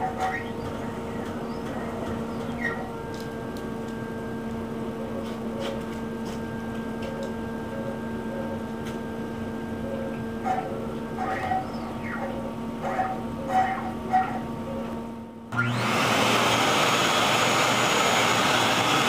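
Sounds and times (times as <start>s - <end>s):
motor humming: 8.6s - 19.0s.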